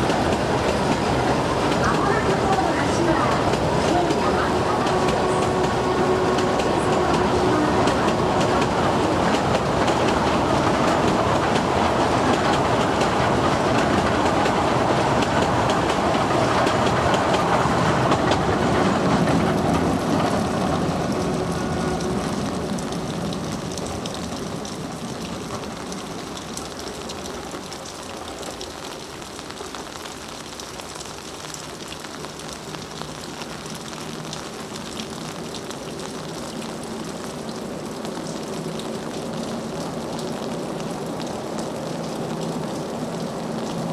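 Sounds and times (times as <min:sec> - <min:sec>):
train wheels clattering over rail joints: 0:00.0 - 0:24.8.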